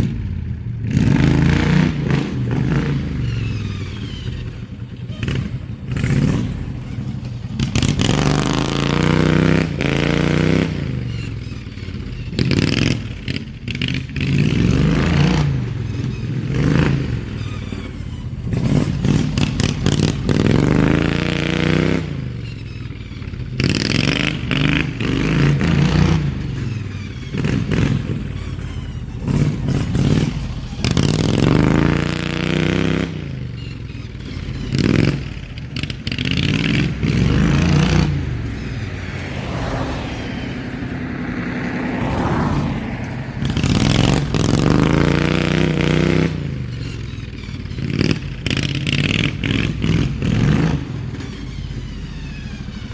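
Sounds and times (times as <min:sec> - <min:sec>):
riding mower engine revving: 0:00.0 - 0:52.9.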